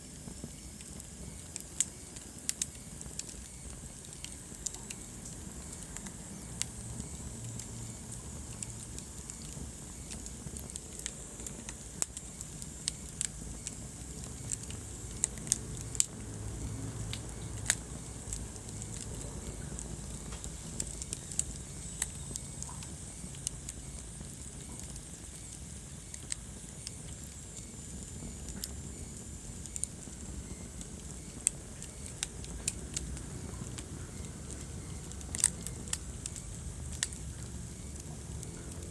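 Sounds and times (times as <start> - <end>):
fire crackling and popping: 0.0 - 38.9
low rumble of flames: 0.0 - 38.9.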